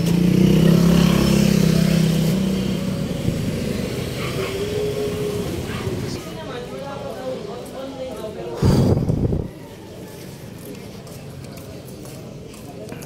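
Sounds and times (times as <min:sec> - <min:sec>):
vehicle engine passing: 0:00.0 - 0:07.8.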